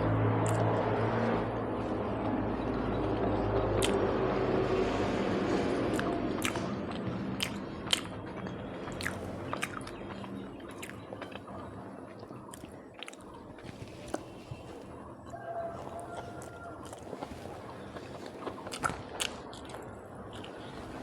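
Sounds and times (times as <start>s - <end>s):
wet mouth clicks: 0.4s - 0.7s, 3.8s - 4.0s, 5.9s - 11.5s, 12.5s - 14.4s, 18.5s - 19.8s
person chewing food: 0.4s - 0.8s, 3.8s - 4.1s, 5.9s - 21.0s.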